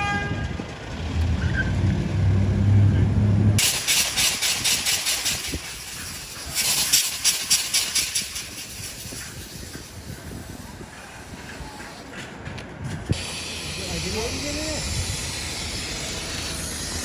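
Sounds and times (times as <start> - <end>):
vehicle hissing chuffs: 3.6 - 12.4, 13.1 - 17.0.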